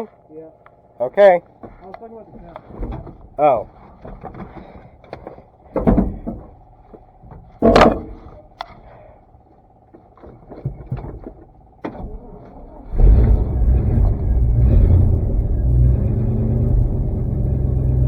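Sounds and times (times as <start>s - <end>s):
knocks and clunks: 1.6s - 6.6s, 7.2s - 8.6s, 10.2s - 12.6s.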